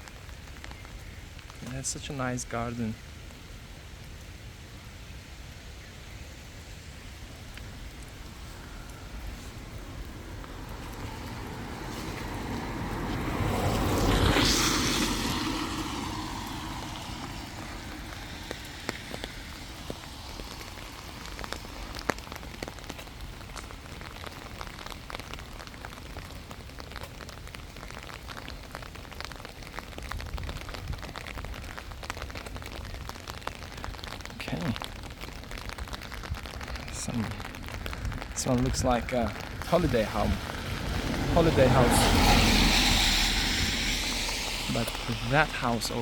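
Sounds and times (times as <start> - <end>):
faint ticks and crunches: 7.2 - 13.8, 17.0 - 40.6
vehicle driving past: 10.6 - 18.3, 39.7 - 46.0.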